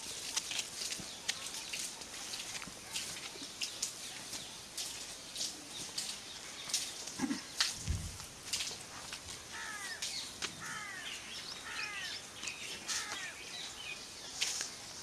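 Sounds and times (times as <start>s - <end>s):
bird calling: 9.5s - 13.8s.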